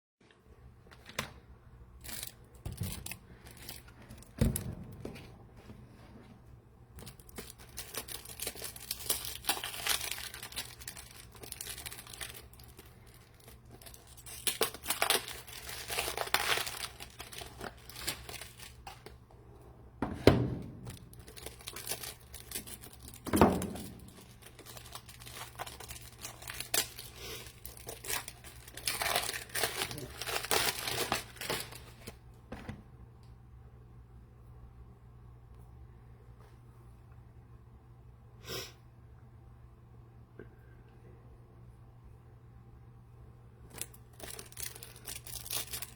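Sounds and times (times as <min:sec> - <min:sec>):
plastic wrapping crinkling and tearing: 0:07.0 - 0:19.2, 0:20.7 - 0:32.2, 0:43.7 - 0:45.9
things set down with thuds: 0:20.0 - 0:20.9.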